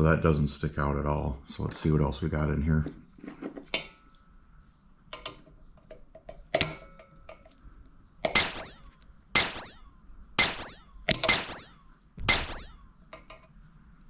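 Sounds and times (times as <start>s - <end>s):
sharp ringing metallic strikes: 8.4s - 12.8s.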